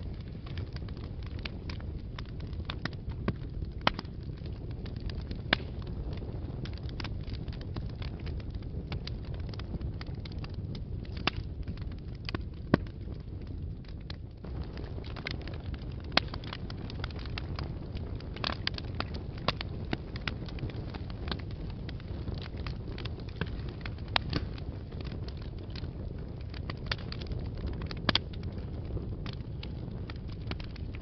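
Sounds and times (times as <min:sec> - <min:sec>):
fire crackling and popping: 0:00.0 - 0:31.0
low rumble of flames: 0:00.0 - 0:31.0.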